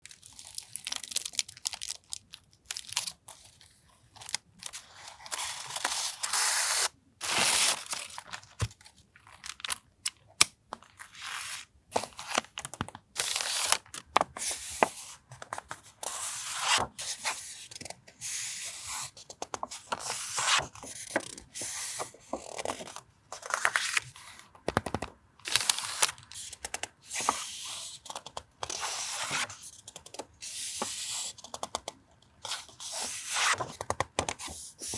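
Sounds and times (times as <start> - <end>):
paper and packaging rustling: 0.0 - 9.8.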